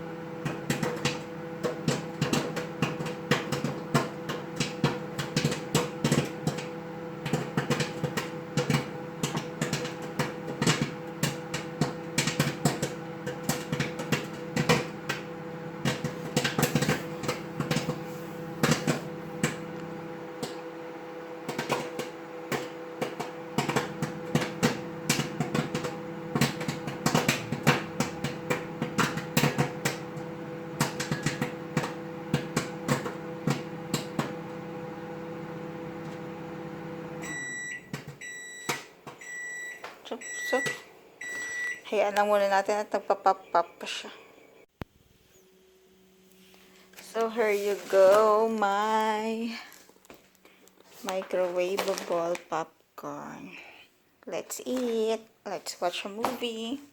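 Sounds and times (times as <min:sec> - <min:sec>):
popcorn popping: 0:00.0 - 0:41.4
microwave oven hum: 0:00.0 - 0:50.7.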